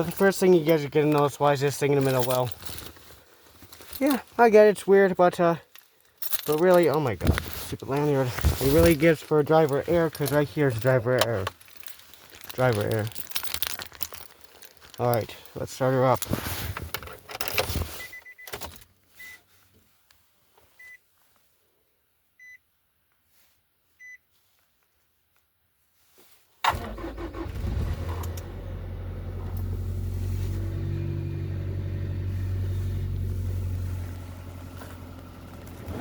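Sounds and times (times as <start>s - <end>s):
car engine starting and running: 26.7s - 36.0s.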